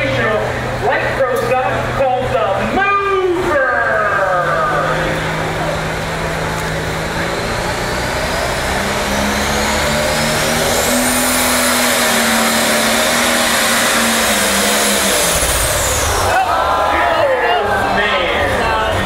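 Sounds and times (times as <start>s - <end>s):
tractor engine revving under load: 3.2s - 16.6s
high whine: 8.2s - 19.0s.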